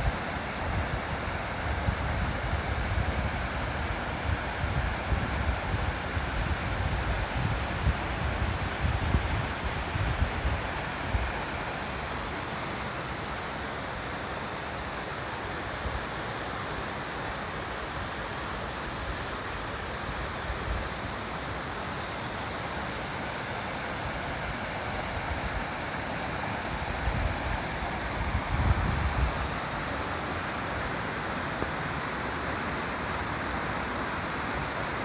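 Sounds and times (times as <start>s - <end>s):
stream water rushing: 0.0s - 35.0s
wind rumbling on microphone: 0.6s - 11.4s, 26.8s - 29.8s.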